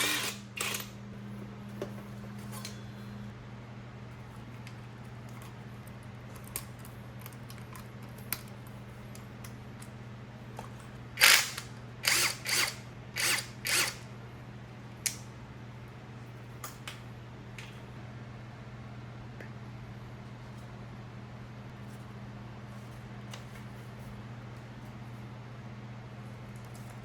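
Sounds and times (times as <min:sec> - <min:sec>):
steady low hum: 0:00.0 - 0:27.0
power tool bursts: 0:11.2 - 0:14.0.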